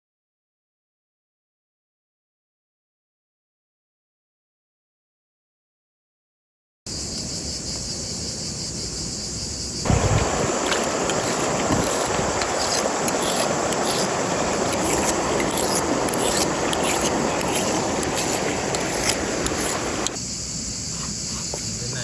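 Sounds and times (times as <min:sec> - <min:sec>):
high insect chirring: 0:06.9 - 0:22.0
rushing noise: 0:09.9 - 0:20.2.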